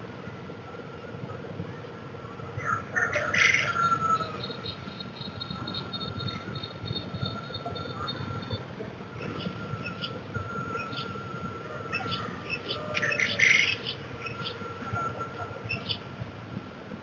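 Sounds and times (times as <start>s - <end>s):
faint steady high tone: 0.3s - 16.3s
birds chirping: 2.6s - 16.2s.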